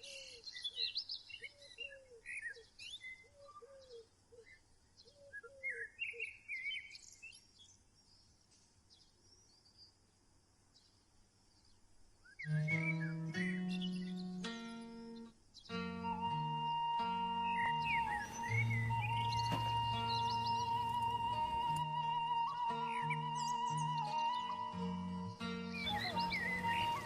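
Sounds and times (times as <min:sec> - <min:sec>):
birds chirping and whistling: 0:16.0 - 0:27.0
lower arched bird call: 0:16.0 - 0:27.0.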